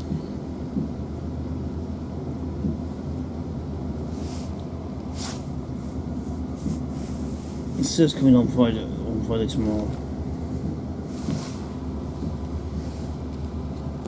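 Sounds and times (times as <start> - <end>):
train cabin rumble and hum: 0.0 - 14.0
brief hissing rustles: 4.1 - 5.6, 11.1 - 11.8.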